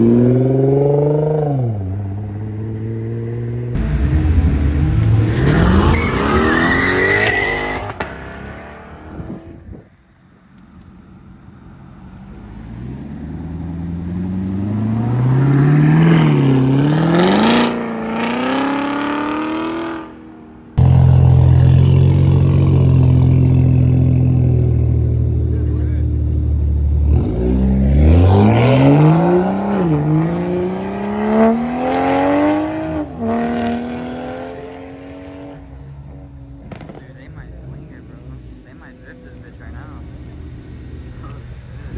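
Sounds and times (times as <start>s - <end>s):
car engines accelerating hard: 0.0s - 10.0s, 10.6s - 41.9s
car engine running loud close by: 20.8s - 30.2s, 36.1s - 41.9s.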